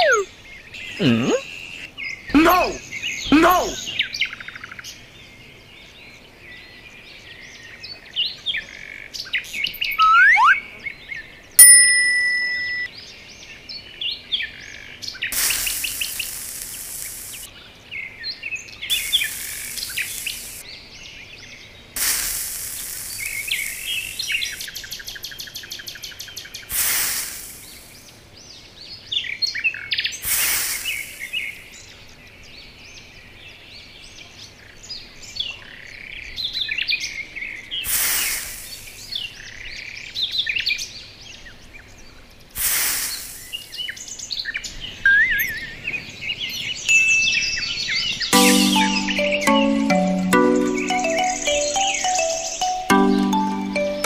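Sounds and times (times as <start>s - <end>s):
small birds chirping: 0.0s - 11.6s, 12.2s - 54.0s
loud beep-like tone: 11.6s - 12.9s.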